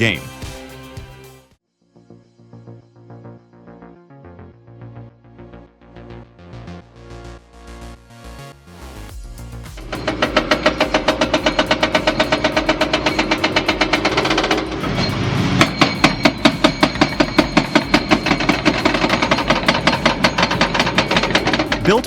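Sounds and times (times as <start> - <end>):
excavator engine running: 9.8 - 22.0
hydraulic breaker hammering concrete: 9.8 - 22.0.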